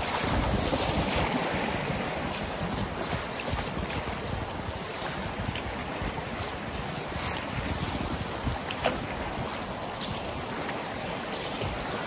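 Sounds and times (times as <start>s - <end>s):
rushing whitewater: 0.0s - 12.0s
wind rumbling on microphone: 0.0s - 12.0s.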